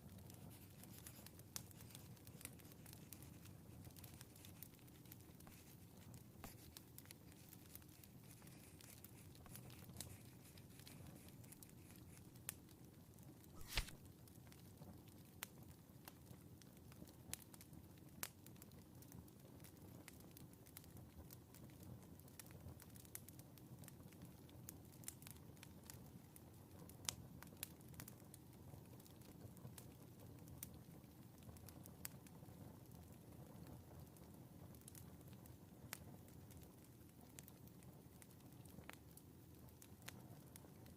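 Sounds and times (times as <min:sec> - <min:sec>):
fireplace crackling: 0:00.0 - 0:19.7
wood fire crackling: 0:00.0 - 0:40.9
brief rustle: 0:13.6 - 0:14.0.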